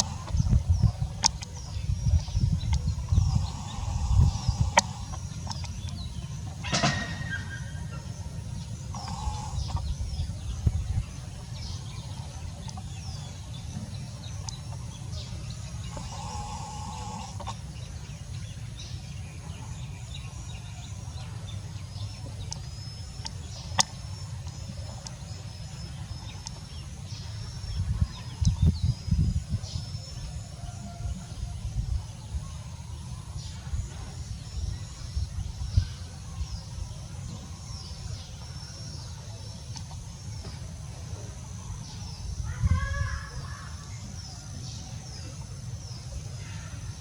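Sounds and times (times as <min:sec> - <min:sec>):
steady low rumble: 0:00.0 - 0:43.2
small birds chirping: 0:00.0 - 0:47.0.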